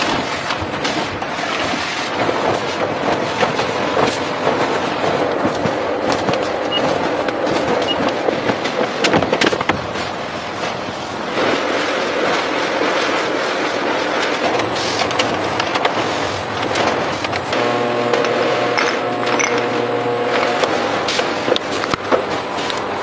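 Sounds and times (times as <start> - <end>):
sharp clicks and knocks: 0.0 - 10.0, 14.2 - 19.7
machinery clattering: 0.0 - 23.0.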